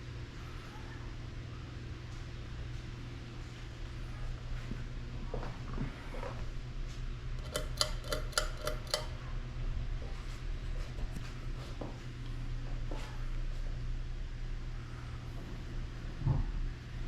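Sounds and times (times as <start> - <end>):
ceiling fan humming: 0.0 - 17.0
light ringing clicks: 7.4 - 9.2.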